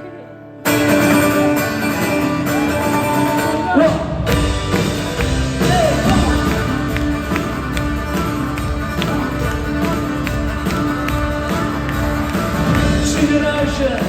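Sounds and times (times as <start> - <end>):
live folk-rock band playing: 0.0 - 14.0
drums: 0.7 - 14.0
person singing: 5.6 - 14.0.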